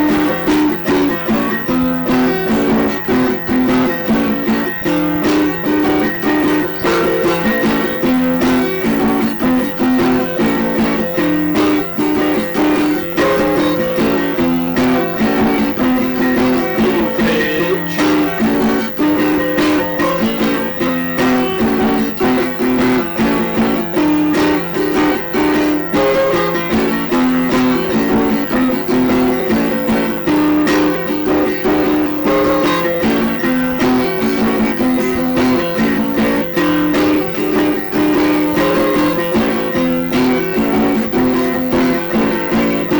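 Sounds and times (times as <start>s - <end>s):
plucked guitar melody: 0.0s - 42.9s.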